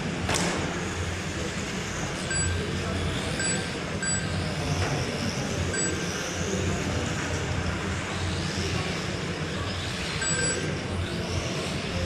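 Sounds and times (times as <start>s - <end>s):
rc truck motors whining: 0.7s - 12.0s
short electronic beeps: 2.3s - 2.6s, 3.4s - 4.4s, 5.7s - 6.0s, 10.2s - 10.7s.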